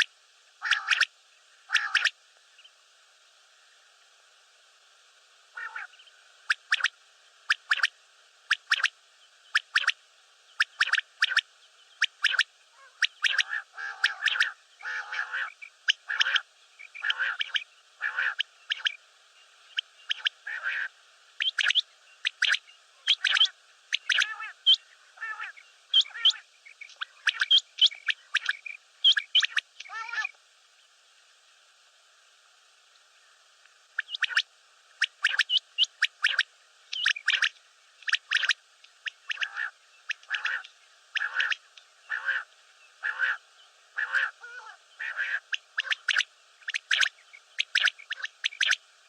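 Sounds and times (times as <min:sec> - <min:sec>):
quail calling: 0:00.0 - 0:01.1, 0:01.7 - 0:02.2, 0:05.5 - 0:07.9, 0:08.5 - 0:08.9, 0:09.5 - 0:10.0, 0:10.6 - 0:11.4, 0:12.0 - 0:19.0, 0:19.7 - 0:30.4, 0:34.0 - 0:48.8
rough low bird calls: 0:01.7 - 0:02.7, 0:05.5 - 0:06.9, 0:10.5 - 0:19.0, 0:19.7 - 0:30.4, 0:35.1 - 0:48.8.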